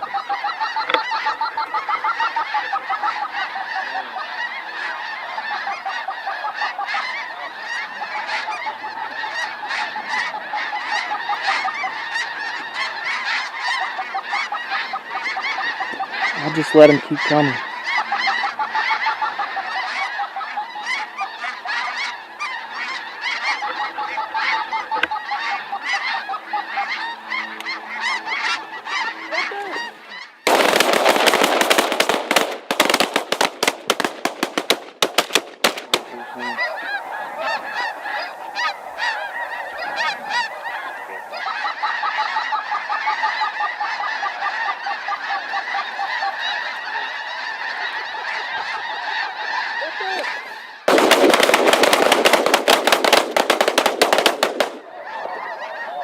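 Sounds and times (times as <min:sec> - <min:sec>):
geese honking: 0:00.0 - 0:56.0
sharp cracks: 0:30.5 - 0:36.5, 0:50.9 - 0:55.0.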